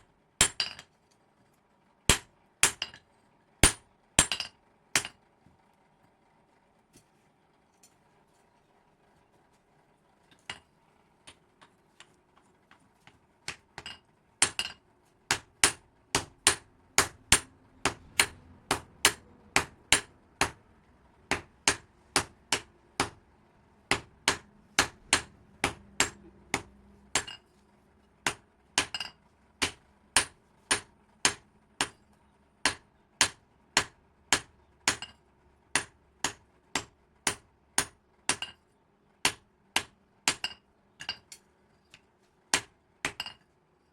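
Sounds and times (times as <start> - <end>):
hammer striking metal on anvil: 2.1 - 3.0, 3.6 - 5.2, 13.5 - 20.6, 23.9 - 27.4, 28.2 - 32.0, 32.6 - 35.2, 35.8 - 38.6, 39.3 - 41.4.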